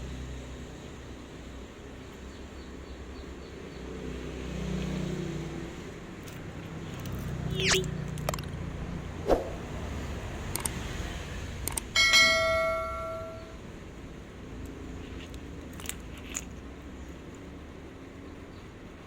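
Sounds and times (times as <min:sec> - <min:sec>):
metal object ringing like bell: 0:12.0 - 0:13.6.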